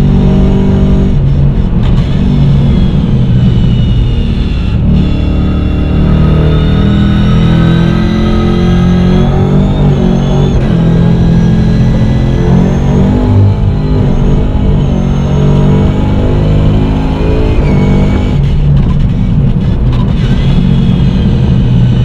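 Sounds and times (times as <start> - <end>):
car engine revving under acceleration: 0.0 - 22.0.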